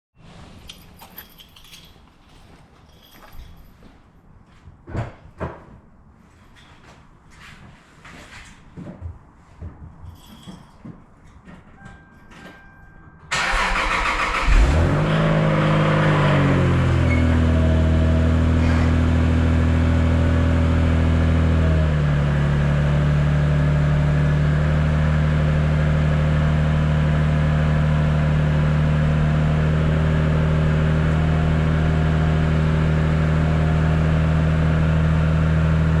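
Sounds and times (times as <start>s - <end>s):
car engine cranking and idling: 13.3s - 36.0s.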